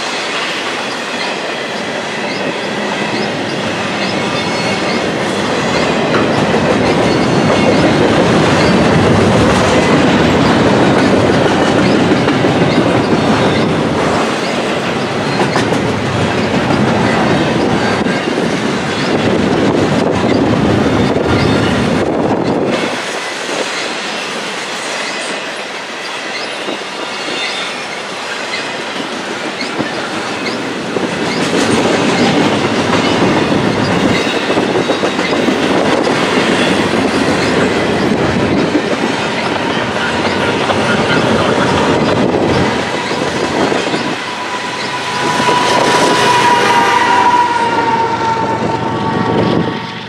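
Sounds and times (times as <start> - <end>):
high wheel squeal: 0.0 - 50.0
steel wheels rumbling on rail: 0.0 - 50.0
wheels clicking over rail joints: 0.8 - 24.1.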